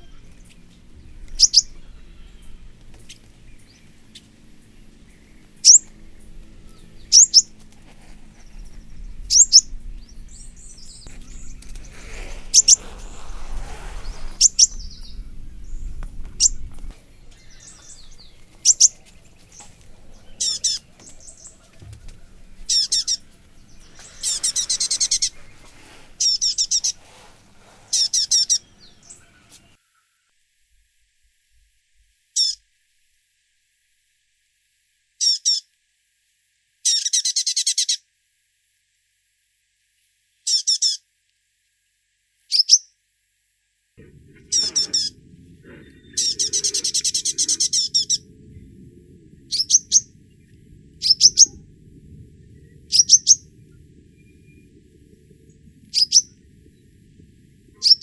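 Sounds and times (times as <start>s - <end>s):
birds chirping and trilling: 0.0s - 29.8s, 32.4s - 32.6s, 44.0s - 58.0s
low steady hum: 0.0s - 29.8s, 44.0s - 58.0s.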